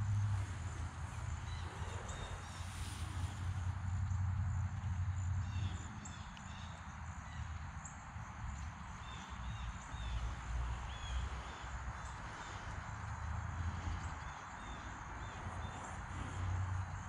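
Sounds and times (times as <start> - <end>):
birds chirping: 1.3 - 3.0.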